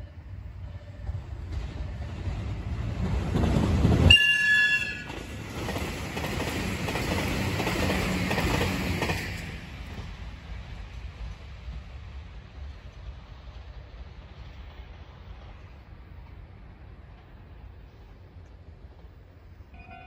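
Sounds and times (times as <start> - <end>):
train passing at speed: 0.0 - 20.0
train horn blast: 4.1 - 5.2.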